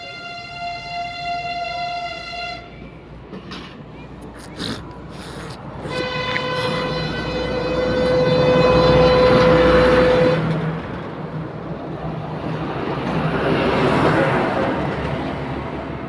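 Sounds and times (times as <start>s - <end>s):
vehicle horn steady note: 0.0s - 2.8s, 5.9s - 10.4s
passing traffic rumble: 0.1s - 16.0s.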